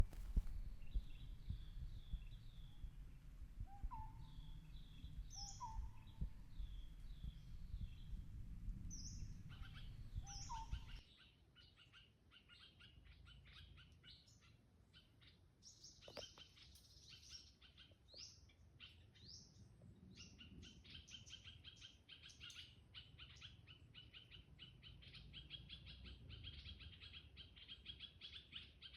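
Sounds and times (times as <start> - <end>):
low rumble: 0.0 - 11.0
bird chirping trill: 0.0 - 14.3
birds chirping and singing: 0.0 - 14.4.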